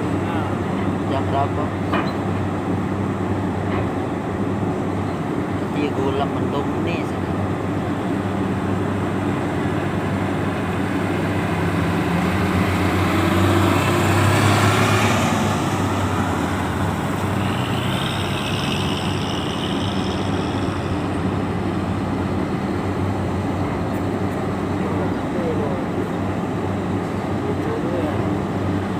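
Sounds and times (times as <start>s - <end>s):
diesel truck engines passing: 0.0s - 28.9s
high-pitched squeal: 13.0s - 22.1s.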